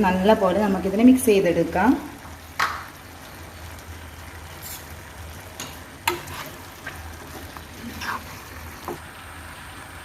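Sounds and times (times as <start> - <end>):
oil sizzling faintly: 0.0 - 10.0
spoon scraping a frying pan: 4.5 - 9.0.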